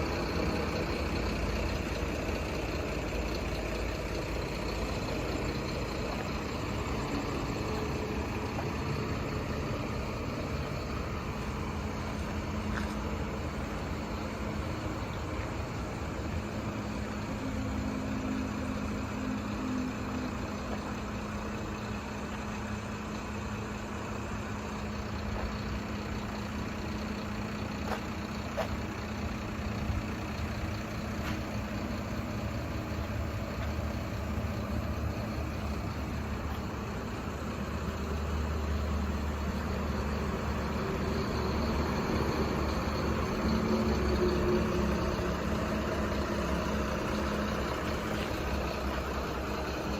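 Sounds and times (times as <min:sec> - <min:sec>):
truck engine idling: 0:00.0 - 0:49.9.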